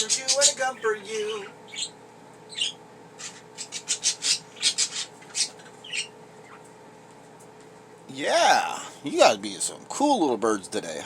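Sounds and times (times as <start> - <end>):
budgerigars chirping: 0.0 - 6.7.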